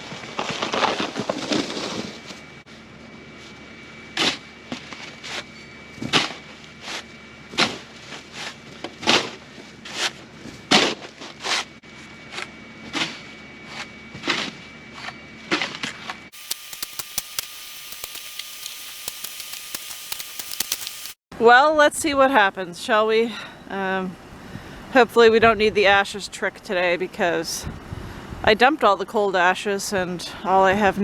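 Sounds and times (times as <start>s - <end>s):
steady hum: 16.3s - 21.2s.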